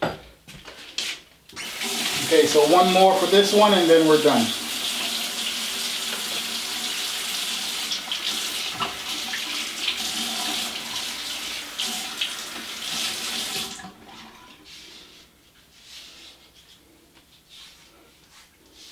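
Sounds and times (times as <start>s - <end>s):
water running from a tap: 1.6s - 14.2s.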